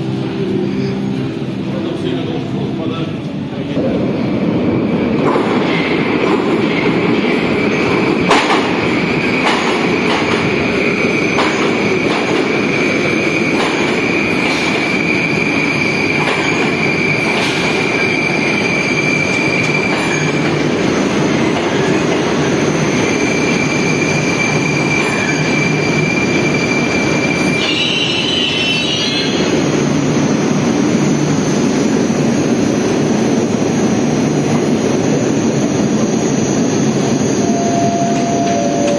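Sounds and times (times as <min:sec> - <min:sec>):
train rumbling through tunnel: 0:00.0 - 0:38.9
clacks over rail joints: 0:08.2 - 0:08.8, 0:09.4 - 0:10.6, 0:11.3 - 0:12.5, 0:13.5 - 0:14.9
high wheel squeal: 0:23.0 - 0:29.6, 0:37.3 - 0:38.9.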